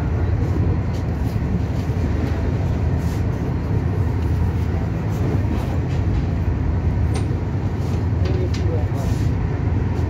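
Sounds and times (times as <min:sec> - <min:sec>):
train running rumble: 0:00.0 - 0:10.0.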